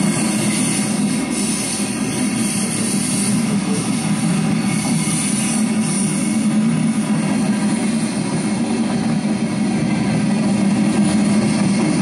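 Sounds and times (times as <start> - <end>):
steel wheels rumbling on rails: 0.0 - 12.0.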